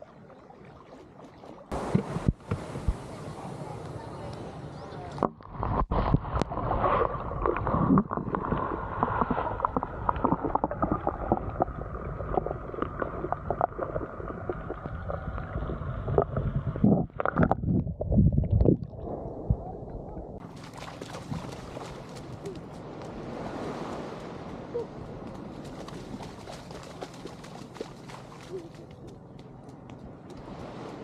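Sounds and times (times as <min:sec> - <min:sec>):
muffled sea water sloshing: 0:00.0 - 0:03.8, 0:20.3 - 0:31.0
surf: 0:00.0 - 0:11.4, 0:20.4 - 0:31.0
wind: 0:00.0 - 0:31.0.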